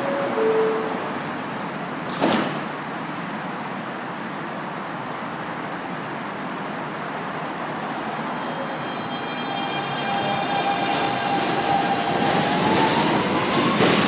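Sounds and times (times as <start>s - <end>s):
subway door chime: 0.0s - 2.0s, 7.9s - 14.0s
station noise: 8.0s - 14.0s.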